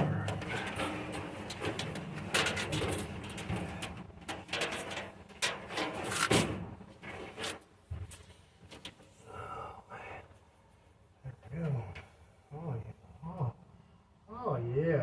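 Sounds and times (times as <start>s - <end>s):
sharp clicks and knocks: 0.0s - 9.1s
wiring rustling: 0.0s - 9.2s.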